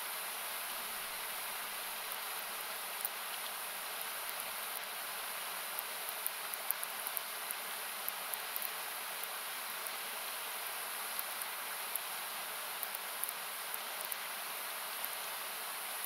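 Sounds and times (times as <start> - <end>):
river or waterfall hiss: 0.0 - 16.0.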